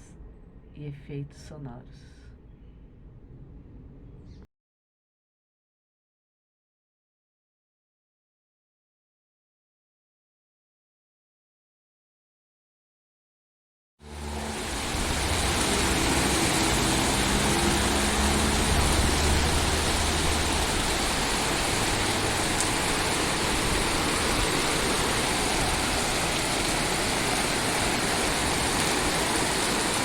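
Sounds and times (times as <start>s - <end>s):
traffic roar: 14.0s - 30.0s
vehicle engine rumbling: 14.1s - 28.9s.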